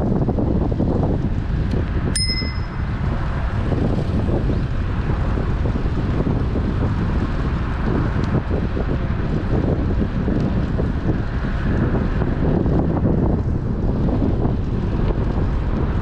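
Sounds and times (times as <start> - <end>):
wind rumbling on microphone: 0.0 - 16.0
bicycle bell ding: 2.2 - 3.2.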